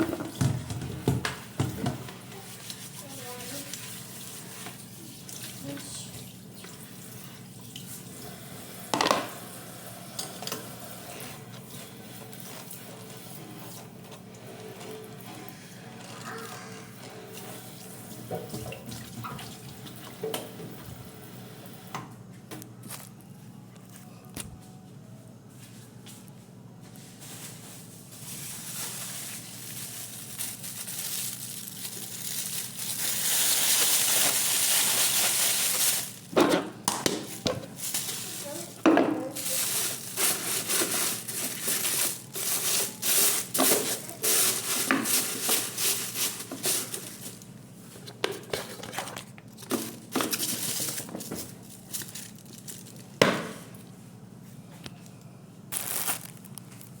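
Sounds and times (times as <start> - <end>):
crinkling and rustling: 26.1 - 54.0, 55.7 - 57.0.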